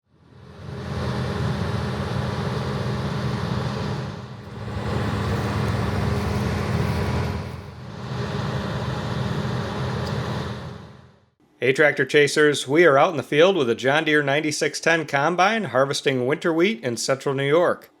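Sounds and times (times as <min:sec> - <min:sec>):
combine harvester engine drone: 0:00.1 - 0:11.2.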